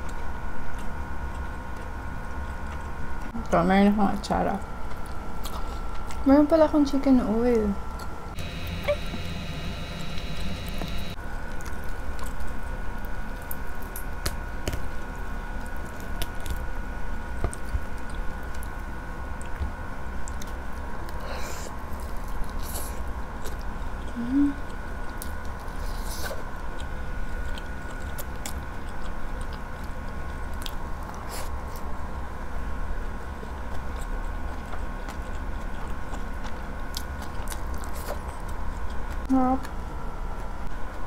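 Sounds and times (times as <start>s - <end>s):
person chewing chicken: 0.0s - 3.3s, 4.9s - 6.2s, 7.9s - 32.0s, 32.9s - 39.3s
faint steady hum: 0.0s - 41.0s.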